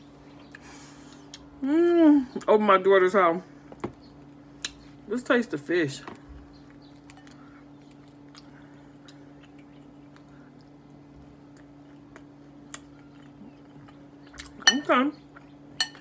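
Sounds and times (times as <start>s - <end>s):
chewing mouth sounds: 6.7s - 14.6s.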